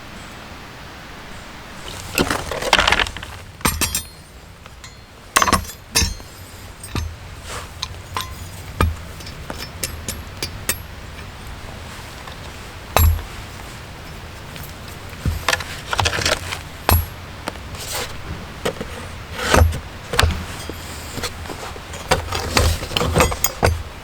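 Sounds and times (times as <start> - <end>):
gear rustling: 1.8 - 24.0
hard objects clinking and knocking: 1.9 - 11.6, 12.2 - 24.0.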